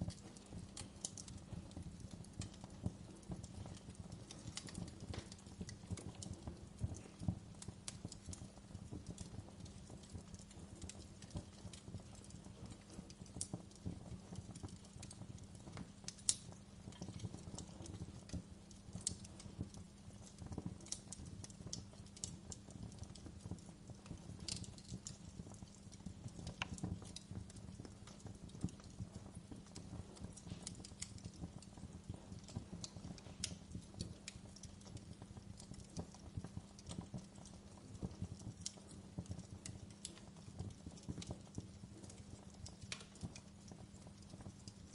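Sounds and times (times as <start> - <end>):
low rumble of burning logs: 0.0 - 44.9
wood fire crackling and popping: 0.0 - 44.9.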